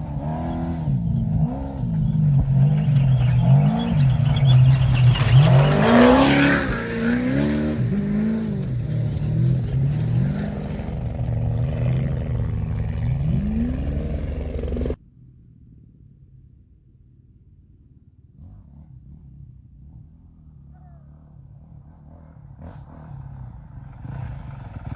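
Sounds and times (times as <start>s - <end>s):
truck engine revving: 0.0s - 15.0s, 22.0s - 24.9s.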